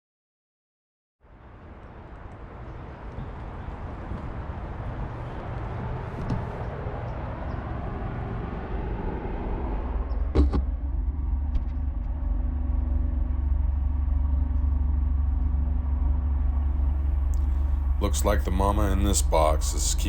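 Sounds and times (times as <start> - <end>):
low engine hum: 1.3 - 20.0
wide rushing noise: 1.5 - 10.5.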